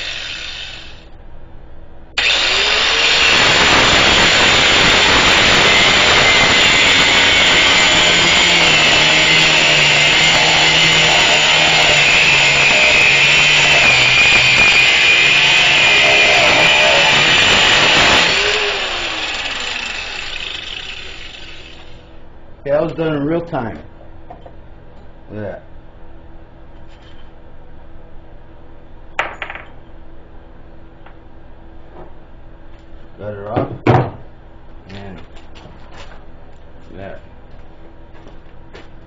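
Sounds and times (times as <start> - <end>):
angle grinder cutting steel: 0.0 - 1.1, 2.2 - 22.1
grinder winding down whine: 0.0 - 1.1, 2.2 - 22.1.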